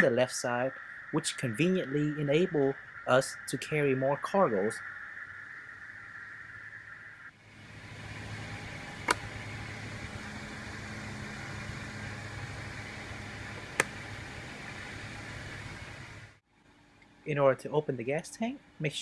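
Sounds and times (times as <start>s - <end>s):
car engine idling: 7.4s - 16.4s
sharp click: 9.0s - 9.2s.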